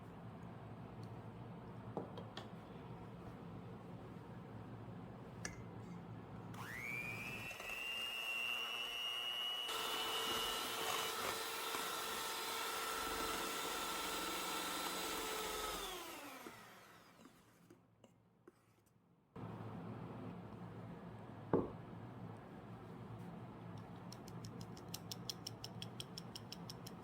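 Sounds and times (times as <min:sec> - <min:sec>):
electric kitchen mixer motor whining: 0:06.6 - 0:17.4.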